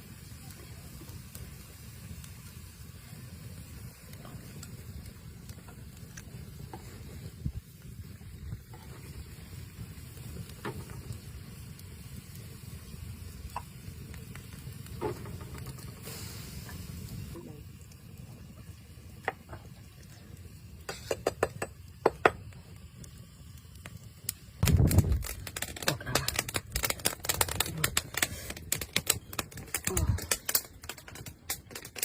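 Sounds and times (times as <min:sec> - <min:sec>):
low steady cooking rumble: 0:00.0 - 0:32.0
crackles and taps: 0:03.9 - 0:16.0, 0:19.1 - 0:32.0.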